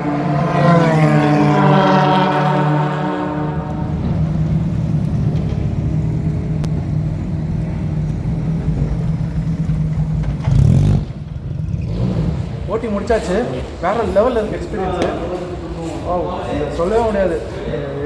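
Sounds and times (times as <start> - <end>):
race car engine rumbling: 0.0 - 18.0.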